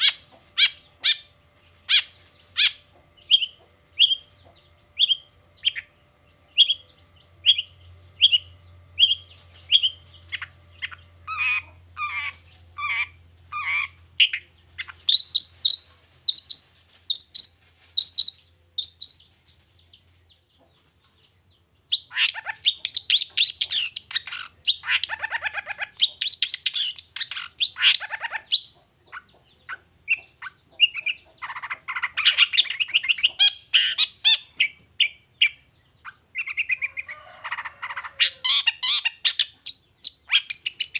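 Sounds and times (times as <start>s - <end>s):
bird chattering: 0.0s - 19.4s, 21.9s - 40.9s
bird singing short repeated calls: 0.0s - 19.4s, 21.8s - 40.9s.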